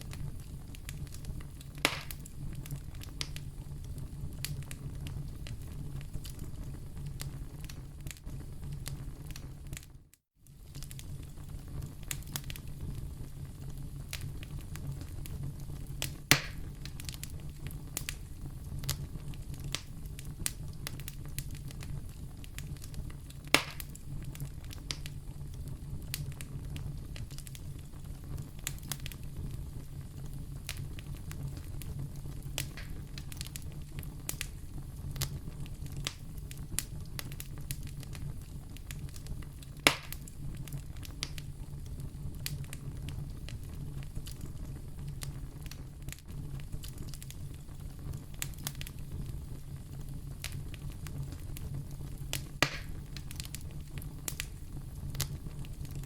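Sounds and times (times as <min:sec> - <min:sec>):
loud fire pops: 0:00.0 - 0:09.9, 0:10.5 - 0:56.0
wood fire crackling: 0:00.0 - 0:56.0.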